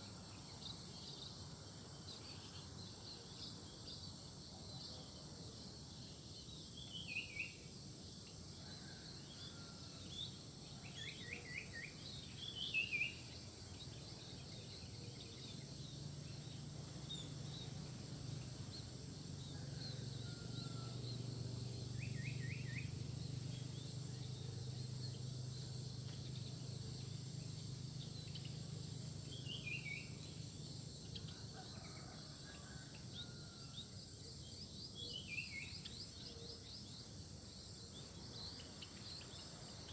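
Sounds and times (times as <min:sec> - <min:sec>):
insects droning: 0:00.0 - 0:39.9
small birds chirping: 0:08.8 - 0:31.7, 0:32.4 - 0:39.9.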